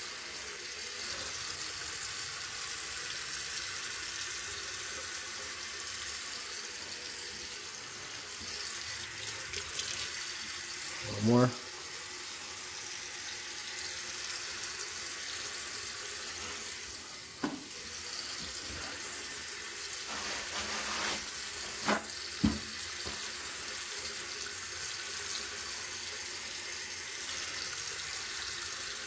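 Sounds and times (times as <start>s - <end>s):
faucet running into sink: 0.0s - 29.0s.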